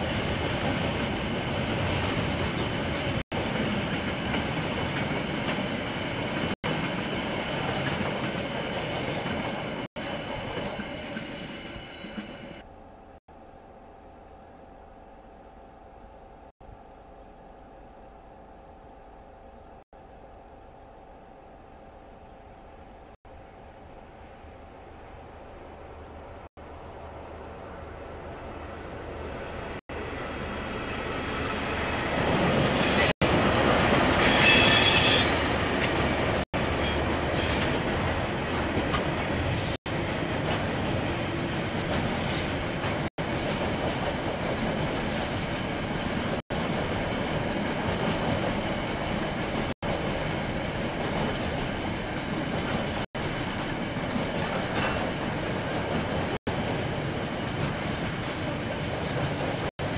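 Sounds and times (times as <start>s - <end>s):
train passing on rails: 0.0s - 59.9s
high wheel squeal: 32.7s - 33.2s, 34.2s - 35.6s.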